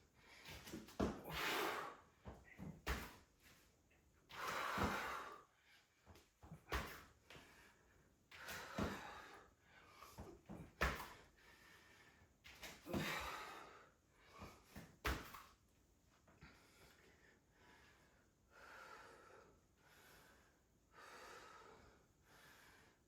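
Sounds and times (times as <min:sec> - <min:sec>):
woman breathing hard: 0:04.3 - 0:06.1, 0:07.3 - 0:10.6, 0:11.2 - 0:14.7, 0:16.4 - 0:23.0.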